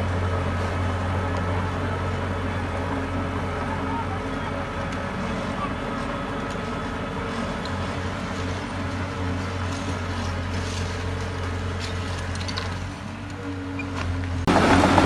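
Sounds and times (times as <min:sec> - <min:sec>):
heavy diesel engine droning: 0:00.0 - 0:15.0.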